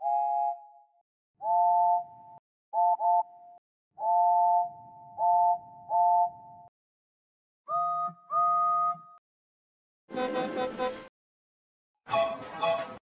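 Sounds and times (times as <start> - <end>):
steam locomotive whistle toots: 0.0 - 0.8, 10.1 - 11.1, 12.1 - 13.0.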